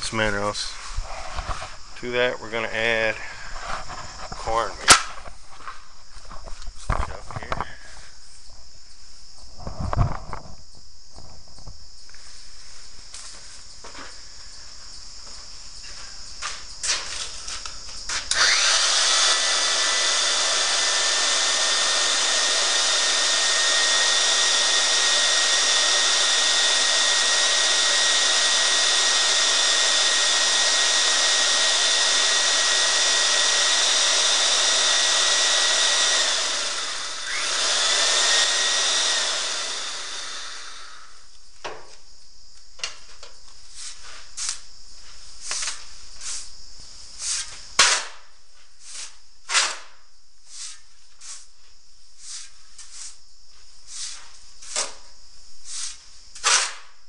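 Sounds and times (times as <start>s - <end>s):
machine whining: 18.2s - 41.2s
knocks and thumps: 41.6s - 42.0s.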